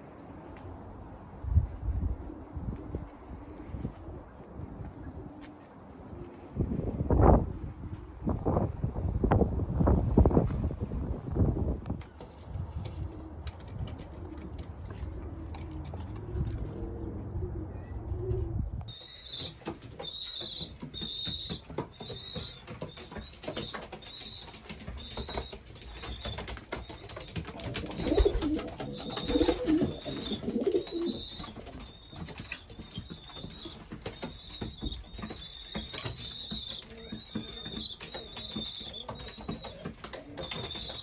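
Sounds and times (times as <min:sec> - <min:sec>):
pigeons cooing: 0:14.2 - 0:41.0
pigeon wings flapping: 0:19.2 - 0:41.0.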